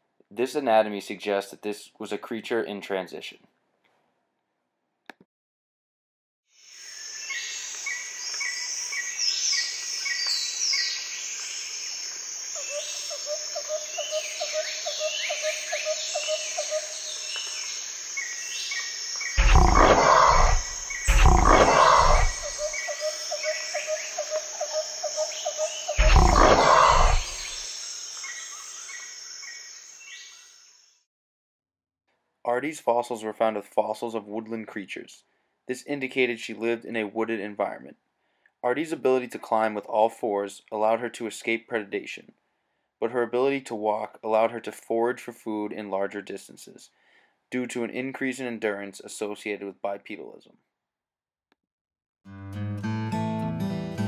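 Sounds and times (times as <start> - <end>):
chirping animal calls: 12.6 - 17.3, 19.4 - 27.6
loud animal roars: 19.4 - 22.7, 26.0 - 27.6
animal trill: 19.4 - 27.6.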